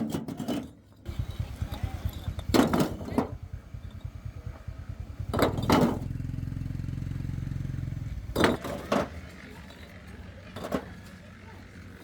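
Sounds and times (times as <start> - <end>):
small engine running: 1.0 - 12.0.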